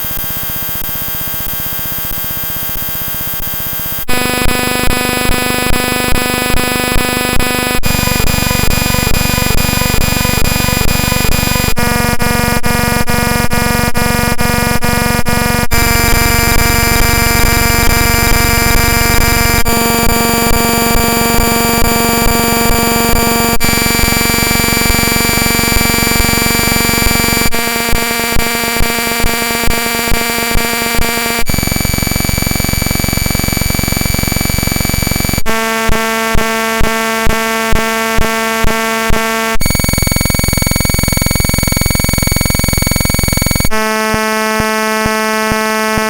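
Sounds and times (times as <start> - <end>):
harsh synthesized electronic tones: 0.0 - 46.0
regular electronic beat: 4.1 - 14.3, 37.3 - 46.0.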